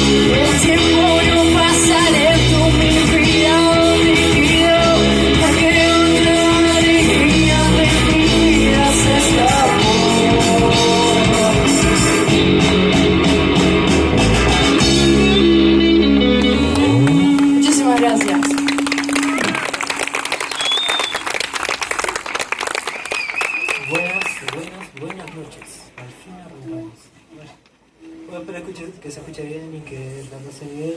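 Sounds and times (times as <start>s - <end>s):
rock music with singing: 0.0s - 19.2s.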